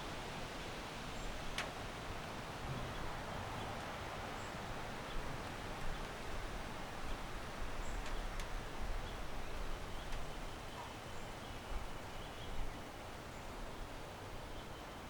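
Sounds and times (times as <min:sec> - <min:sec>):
trees rustling: 0:00.0 - 0:15.0
faint bird chirps: 0:09.0 - 0:15.0.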